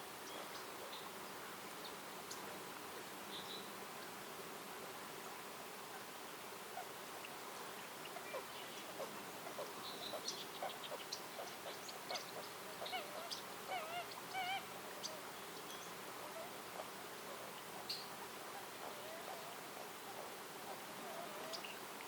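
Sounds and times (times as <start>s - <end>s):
faint hiss: 0.0s - 22.0s
birds chirping and calling: 8.0s - 16.5s, 18.8s - 21.8s
buzzy bird calls: 8.0s - 16.9s.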